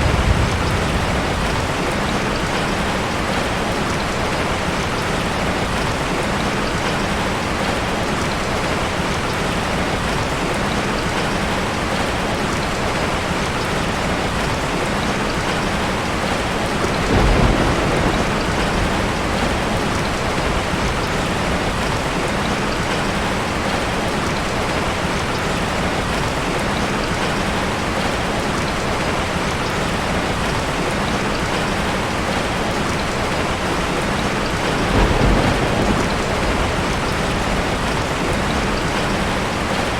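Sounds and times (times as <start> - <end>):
thunder rumble: 0.0 - 4.9, 15.5 - 22.9, 33.2 - 39.9
steady rain: 0.0 - 39.9.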